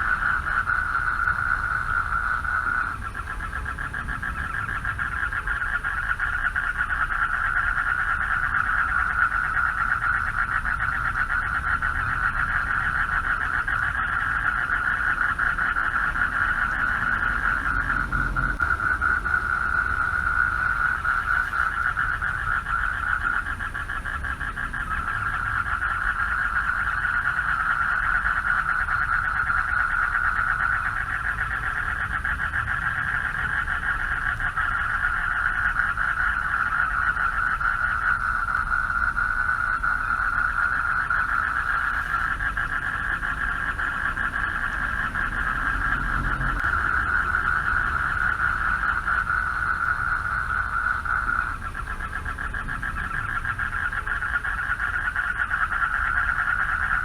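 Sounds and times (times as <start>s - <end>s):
frogs trilling: 0.0s - 57.0s
low rumble: 15.0s - 25.5s, 40.8s - 54.8s.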